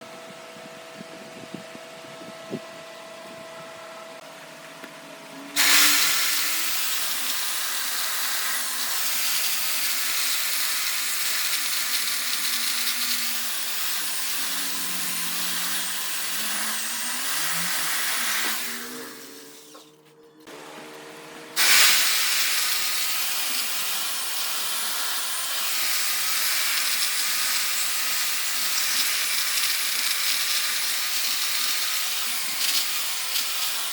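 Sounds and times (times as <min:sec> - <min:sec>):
tool rushing on spinning wood: 0:08.2 - 0:19.9
wood lathe humming: 0:11.5 - 0:19.9.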